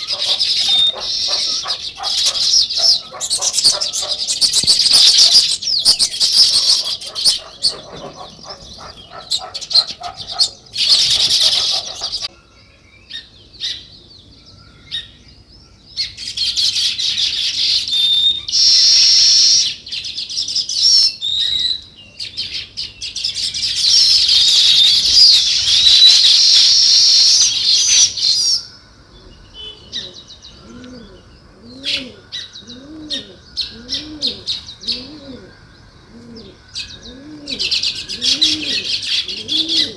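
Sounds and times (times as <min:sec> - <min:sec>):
pigeon cooing: 0:00.0 - 0:12.3, 0:29.2 - 0:39.9
sparrows chirping: 0:00.0 - 0:39.9.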